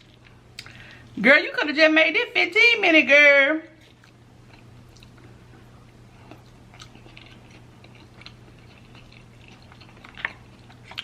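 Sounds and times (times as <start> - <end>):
person chewing food: 0.0 - 0.9, 3.8 - 11.0.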